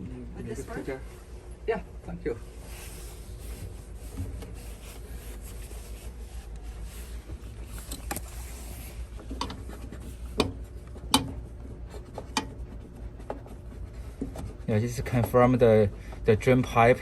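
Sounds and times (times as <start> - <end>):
low steady hum: 0.0 - 17.0
plastic pipe clicks and knocks: 10.4 - 11.4.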